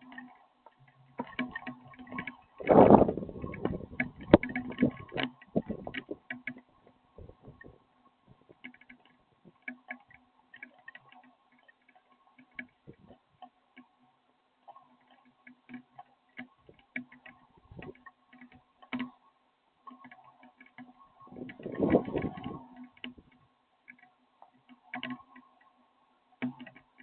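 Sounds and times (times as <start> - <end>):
steady low hum: 0.0 - 9.7, 21.0 - 23.5
rain dripping ticks: 0.0 - 27.0.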